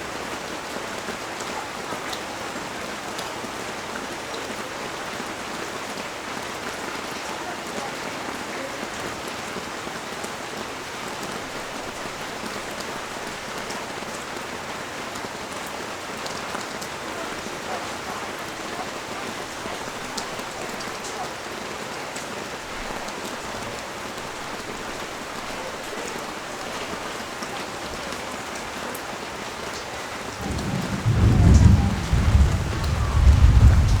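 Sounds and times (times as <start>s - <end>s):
rain falling on street: 0.0s - 34.0s
raindrop ticks: 29.7s - 34.0s
rolling thunder rumble: 30.2s - 34.0s.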